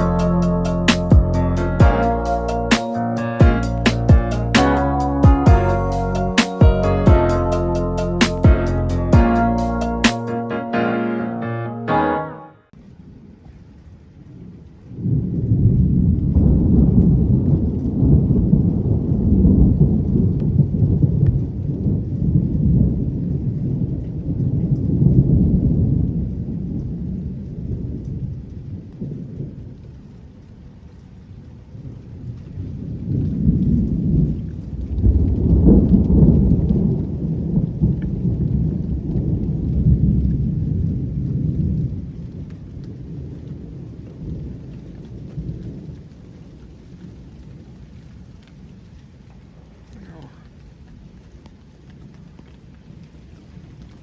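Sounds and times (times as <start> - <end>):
rain falling steadily: 0.0 - 11.1, 12.7 - 54.0
rolling thunder: 14.9 - 28.4, 32.6 - 46.1.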